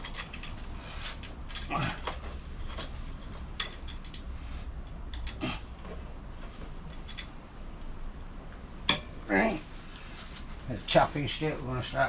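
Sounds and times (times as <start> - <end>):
metal tools clicking and knocking: 0.0 - 4.3, 5.1 - 5.4, 6.9 - 7.9
low steady hum: 0.0 - 12.0.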